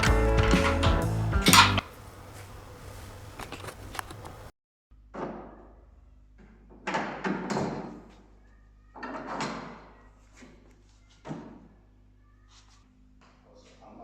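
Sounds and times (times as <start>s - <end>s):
light clicks: 1.4s - 4.5s.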